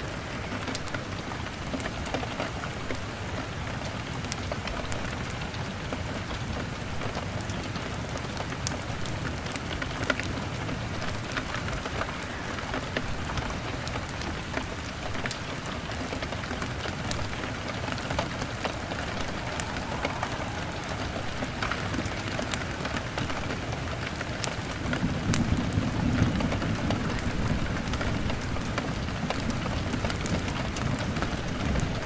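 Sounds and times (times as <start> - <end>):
rain pattering on a window: 0.0 - 32.0
wood fire crackling: 11.7 - 26.1
thunder rumble: 16.5 - 32.0.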